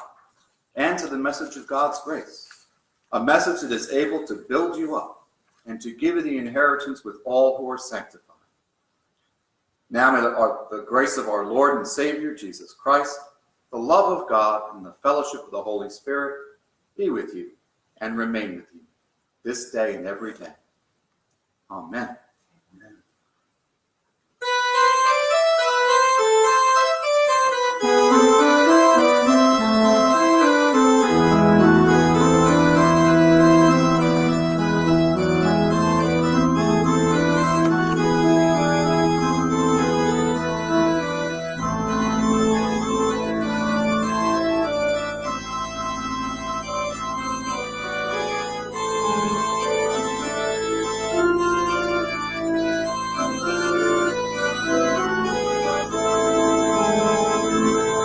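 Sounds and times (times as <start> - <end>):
organ playing sustained chords: 24.4 - 58.0.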